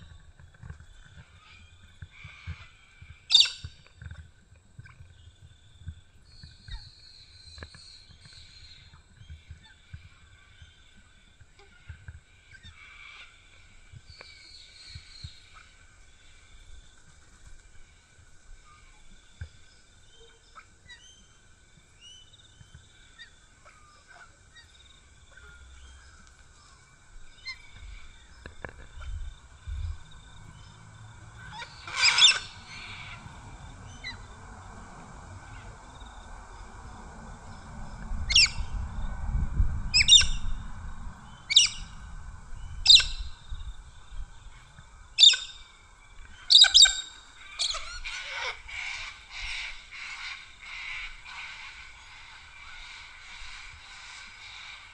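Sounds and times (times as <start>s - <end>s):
birds calling: 0.0s - 4.2s, 4.8s - 39.0s, 39.9s - 54.9s
low rumble: 24.7s - 46.4s.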